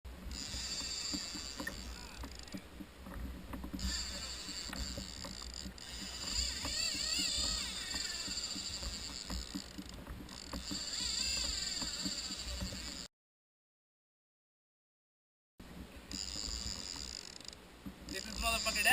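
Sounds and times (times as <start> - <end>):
water rushing against a kayak: 0.1 - 13.0.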